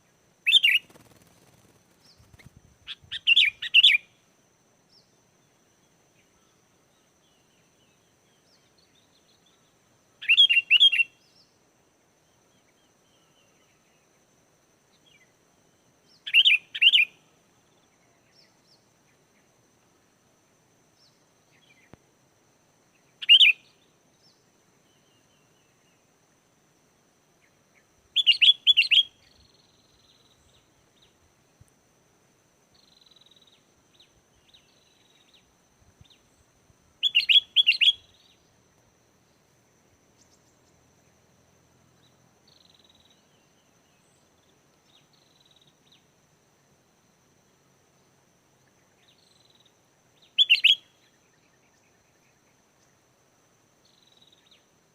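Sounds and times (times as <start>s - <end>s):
faint short bird calls: 10.2s - 11.2s, 50.3s - 51.0s.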